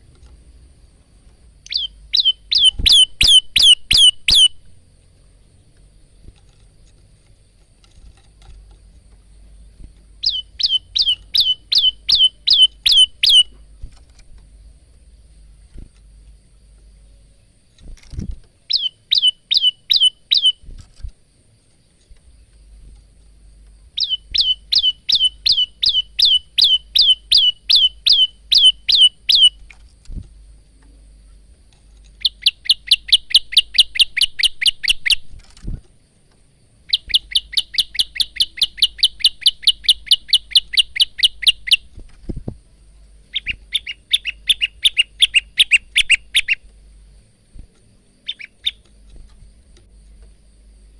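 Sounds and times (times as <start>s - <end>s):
bird singing sharp chirps: 1.6s - 4.7s, 10.2s - 13.6s, 18.7s - 20.7s, 24.0s - 29.6s, 32.2s - 35.2s, 36.9s - 41.9s, 43.3s - 46.6s, 48.2s - 48.9s.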